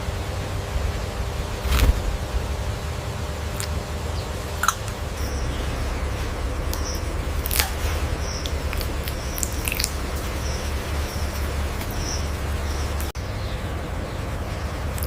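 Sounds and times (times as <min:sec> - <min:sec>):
low hum and hiss: 0:00.0 - 0:15.0
parrot chirping: 0:03.6 - 0:15.0
parrot clicking: 0:04.6 - 0:05.8, 0:06.4 - 0:13.1.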